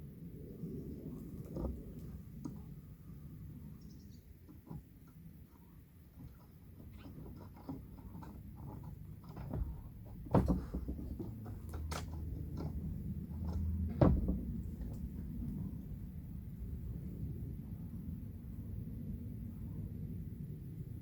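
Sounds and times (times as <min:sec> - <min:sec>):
light clatter and handling noise: 0:04.4 - 0:17.0.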